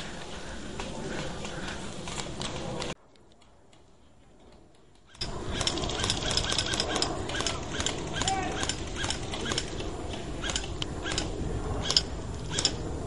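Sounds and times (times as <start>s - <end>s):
outdoor noise: 0.0s - 13.0s
airsoft rifles firing bursts: 5.5s - 9.8s.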